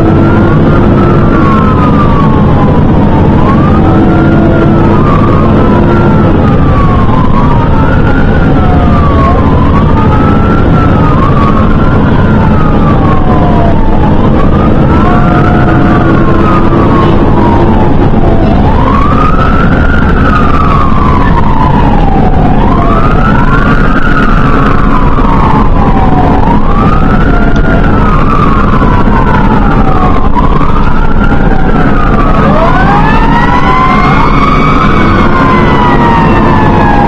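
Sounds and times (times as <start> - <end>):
fire engine siren: 0.0 - 37.0
second siren: 0.0 - 37.0
truck engine drone: 0.0 - 37.0.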